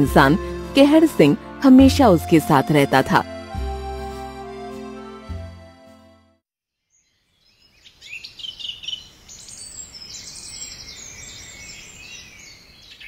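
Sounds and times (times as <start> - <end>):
small birds chirping: 6.9 - 13.0.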